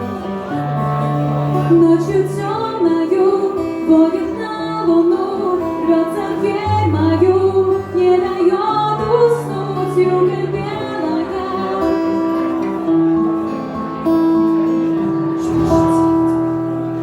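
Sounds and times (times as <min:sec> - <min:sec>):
acoustic guitar: 0:00.0 - 0:17.0
woman singing: 0:01.5 - 0:12.9.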